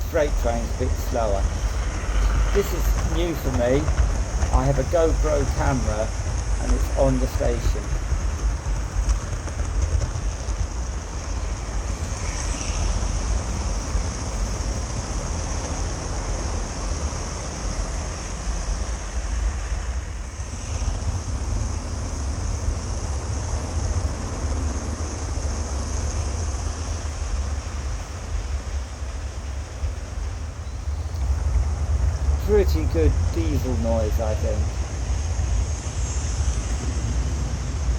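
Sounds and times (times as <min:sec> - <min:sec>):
person speaking: 0:00.0 - 0:01.8, 0:02.4 - 0:03.9, 0:04.5 - 0:07.9, 0:32.4 - 0:34.8
constant high hiss: 0:00.0 - 0:37.9
model train rumbling: 0:00.0 - 0:37.9.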